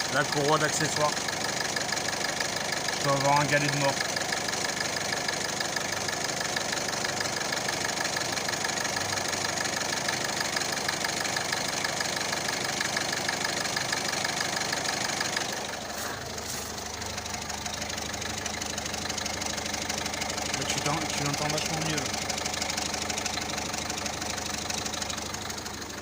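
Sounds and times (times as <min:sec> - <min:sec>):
car engine idling: 0:00.0 - 0:26.0
fast ticking clatter: 0:16.8 - 0:26.0.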